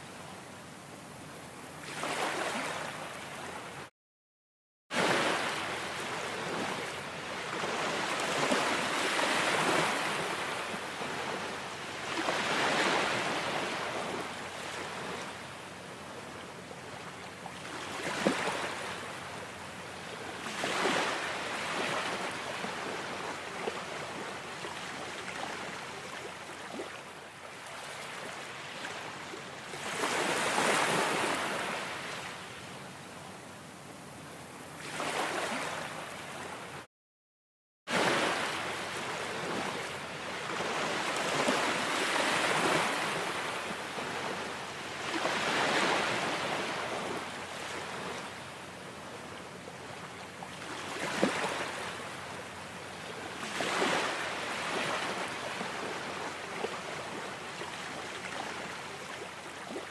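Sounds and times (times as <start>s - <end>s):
ocean waves breaking: 1.8s - 3.6s, 4.9s - 15.3s, 20.4s - 27.0s, 29.8s - 32.3s, 34.8s - 36.6s, 37.9s - 48.3s, 50.6s - 51.9s, 53.4s - 57.2s
steady wash of water: 37.9s - 48.0s.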